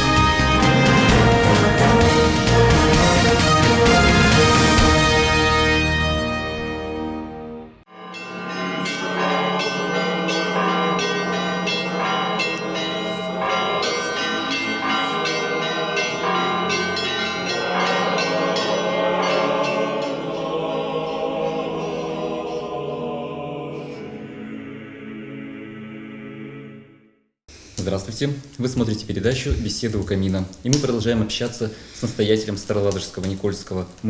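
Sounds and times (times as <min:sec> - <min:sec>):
church bells ringing: 0:07.9 - 0:23.1.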